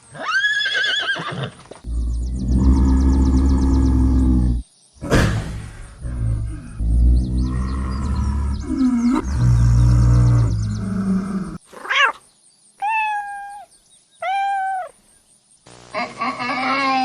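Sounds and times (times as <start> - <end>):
animal cries and high calls: 0.1 - 1.6, 6.4 - 15.0, 16.0 - 17.0
deep rumbling growl: 1.9 - 11.6.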